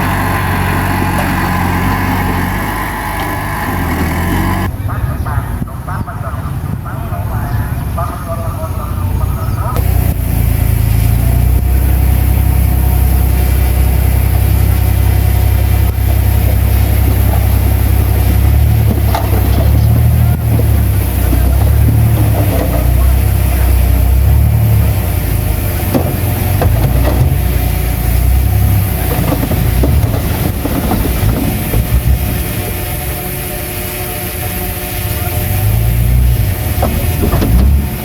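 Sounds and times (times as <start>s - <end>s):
bulldozer diesel engine rumbling: 0.0s - 38.0s
short knocks: 15.7s - 32.8s, 36.7s - 38.0s.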